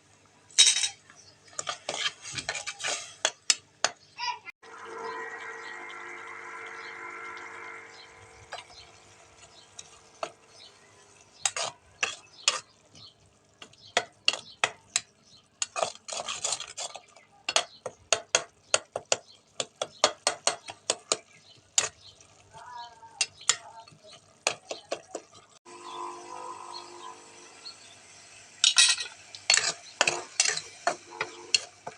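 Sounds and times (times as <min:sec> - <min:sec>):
steady hum: 0:04.6 - 0:11.3.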